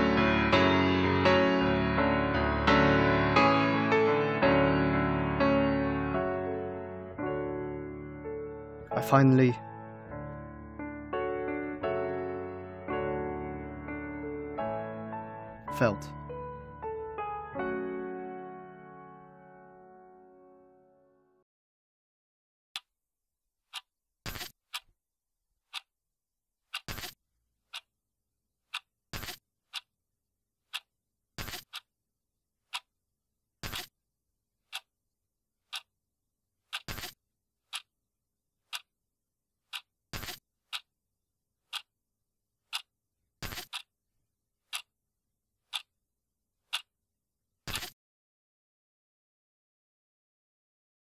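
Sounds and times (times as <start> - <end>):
clock ticking: 23.7 - 24.9, 25.7 - 25.9, 26.7 - 27.9, 28.7 - 29.9, 30.7 - 31.9, 32.7 - 32.9, 34.7 - 34.9, 35.7 - 35.9, 36.7 - 37.9, 38.7 - 38.9, 39.7 - 40.9, 41.7 - 41.9, 42.7 - 43.9, 44.7 - 44.9, 45.7 - 45.9, 46.7 - 46.9
louder clock click: 42.7 - 43.9.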